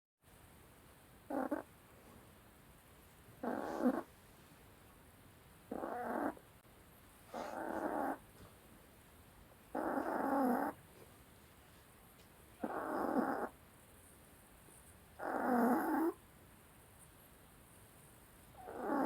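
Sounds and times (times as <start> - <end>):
dog snoring: 1.3 - 1.7, 3.4 - 4.1, 5.7 - 6.4, 7.3 - 8.2, 9.7 - 10.8, 12.6 - 13.5, 15.2 - 16.2, 18.6 - 19.0.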